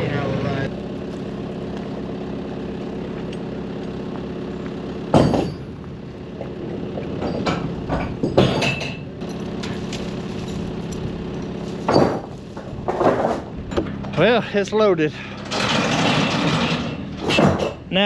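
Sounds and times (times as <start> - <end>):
engine idling: 0.0 - 18.0
loud metal clank: 5.1 - 5.8, 7.2 - 9.8, 15.4 - 17.9
heavy load knocking onto trailer: 6.9 - 9.9, 11.8 - 14.3.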